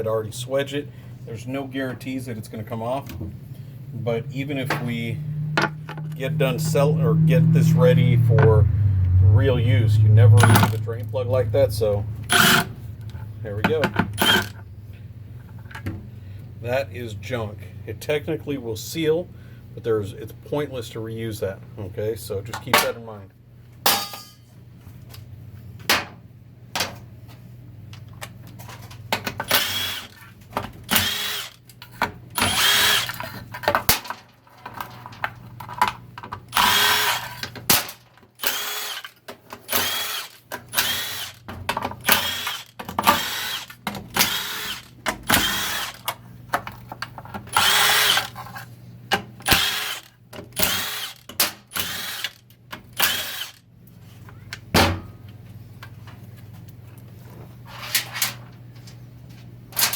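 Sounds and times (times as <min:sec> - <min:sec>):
steady low hum: 0:00.0 - 0:29.6
power tool whining bursts: 0:10.3 - 0:10.8, 0:12.1 - 0:13.4, 0:14.1 - 0:14.6, 0:29.5 - 0:30.2, 0:30.8 - 0:31.6, 0:32.4 - 0:33.2, 0:36.5 - 0:37.4, 0:38.4 - 0:46.0, 0:47.5 - 0:48.4, 0:49.4 - 0:52.4, 0:53.0 - 0:53.6.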